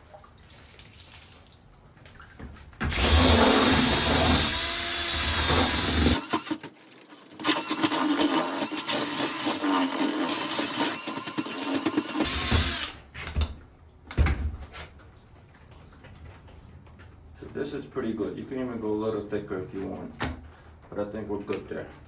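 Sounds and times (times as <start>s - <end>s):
power drill mixing mortar: 2.8s - 13.0s.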